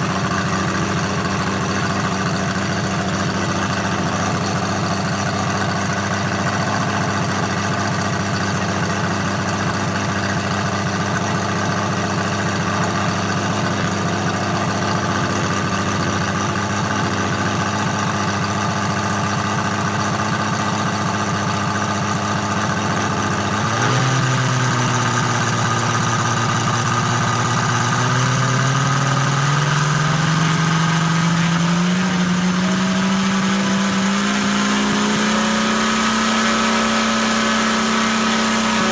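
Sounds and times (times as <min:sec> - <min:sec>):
radial engine idling and revving: 0:00.0 - 0:38.9.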